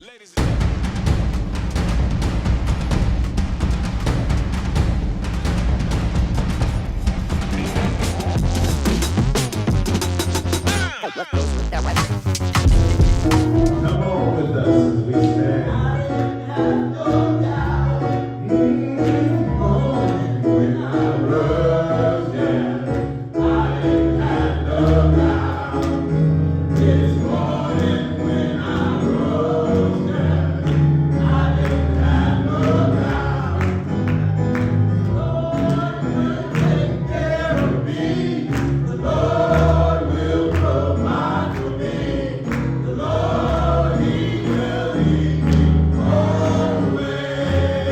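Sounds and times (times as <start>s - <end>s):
drums: 0.4s - 14.0s
bass: 0.4s - 16.3s, 17.2s - 47.9s
gospel choir singing: 13.2s - 47.9s.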